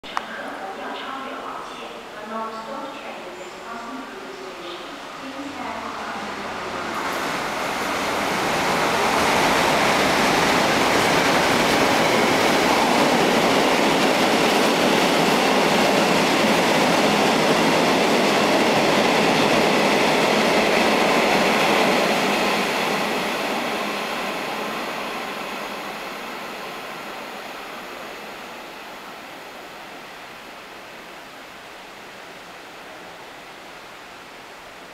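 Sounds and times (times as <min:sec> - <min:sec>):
freight train wheels on rails: 0:04.6 - 0:28.8.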